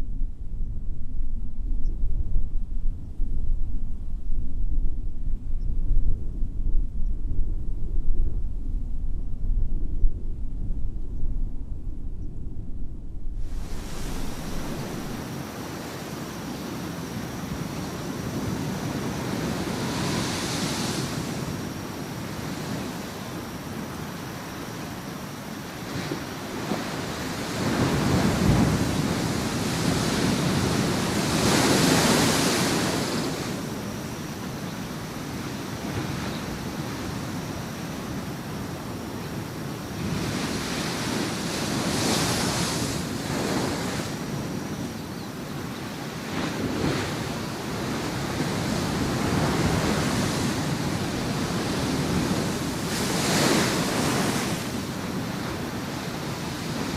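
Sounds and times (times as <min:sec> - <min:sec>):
waves breaking on shore: 0:13.4 - 0:56.9.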